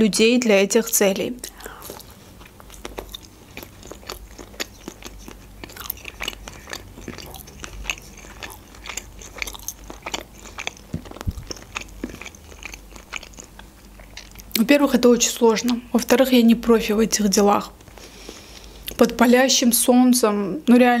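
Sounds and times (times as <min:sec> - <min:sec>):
chewing pizza crunches: 0:01.5 - 0:14.6.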